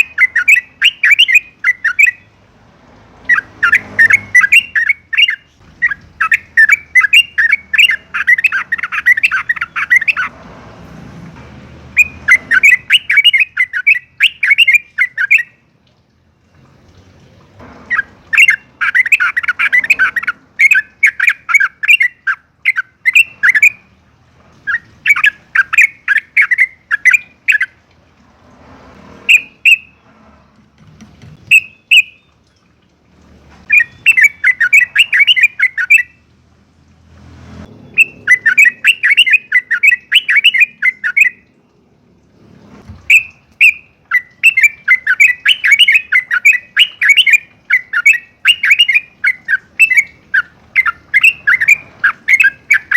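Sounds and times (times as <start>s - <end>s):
bird singing bubbly chattering song: 0.0s - 2.4s, 3.2s - 10.3s, 11.9s - 15.7s, 17.8s - 24.0s, 24.6s - 27.8s, 29.3s - 30.0s, 31.4s - 32.8s, 33.6s - 36.3s, 37.8s - 41.7s, 43.0s - 52.9s.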